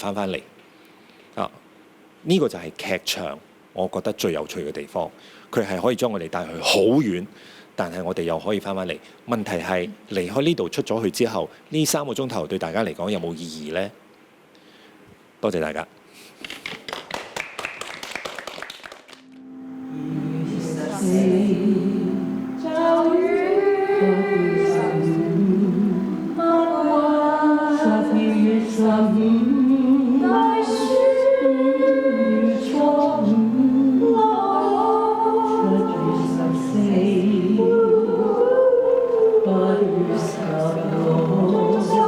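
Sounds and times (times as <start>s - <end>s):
voices singing in harmony: 19.7s - 42.0s.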